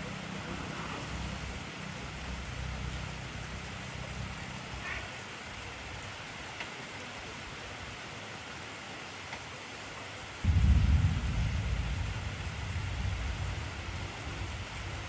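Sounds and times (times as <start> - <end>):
heavy rain hissing: 0.0 - 9.1, 10.3 - 15.0
low rumble: 10.4 - 15.0.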